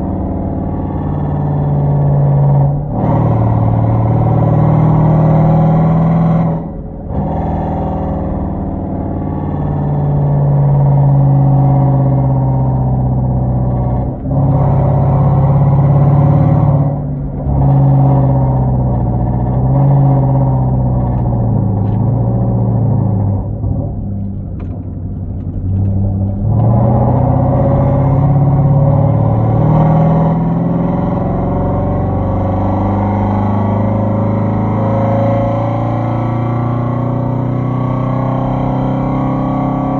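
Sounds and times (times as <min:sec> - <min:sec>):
car exhaust deep drone: 0:00.0 - 0:39.9.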